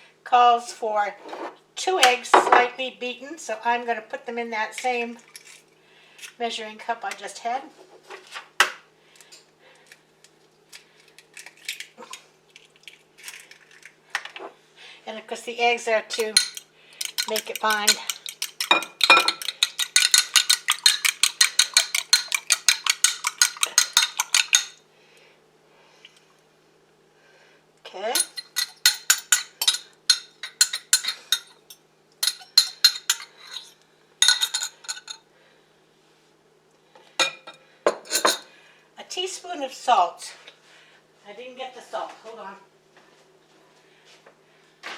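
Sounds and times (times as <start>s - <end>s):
dishes and utensils clinking: 16.1s - 24.8s, 28.2s - 35.2s, 37.2s - 38.4s.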